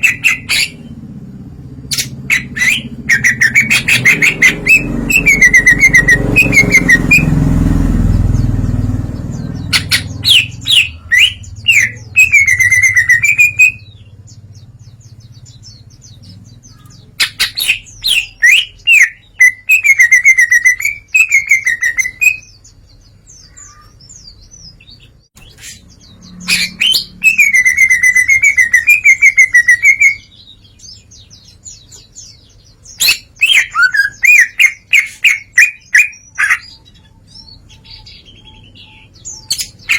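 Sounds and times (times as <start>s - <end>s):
bird singing clicking and warbling: 1.9s - 4.2s.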